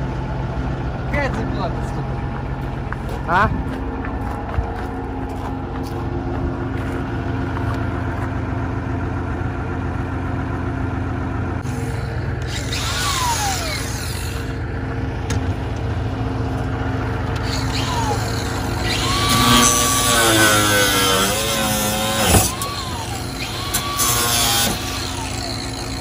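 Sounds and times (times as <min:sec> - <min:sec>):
low machine hum: 0:00.0 - 0:26.0
power tool winding down: 0:11.6 - 0:14.6, 0:17.3 - 0:26.0.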